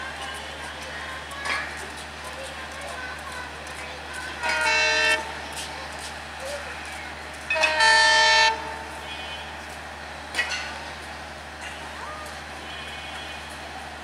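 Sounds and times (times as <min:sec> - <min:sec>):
locomotive horn blasts: 0:04.4 - 0:05.4, 0:07.5 - 0:09.5, 0:12.6 - 0:13.6.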